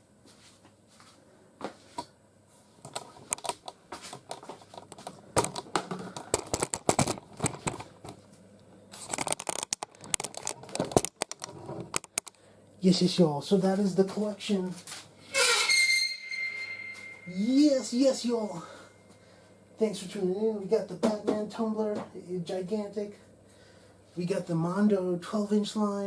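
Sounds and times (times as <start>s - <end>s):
plastic toys clicking and tapping: 3.3s - 7.8s, 9.1s - 12.4s.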